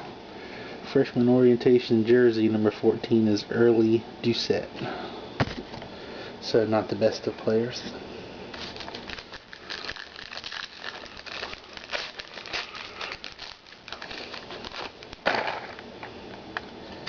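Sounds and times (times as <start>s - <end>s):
card packaging crinkling: 8.5s - 15.9s.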